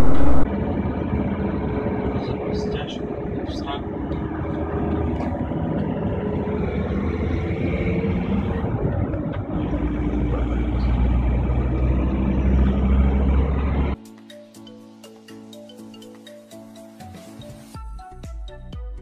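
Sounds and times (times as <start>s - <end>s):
deep low drone: 0.0s - 14.0s
vehicle engine and road noise: 0.0s - 14.0s.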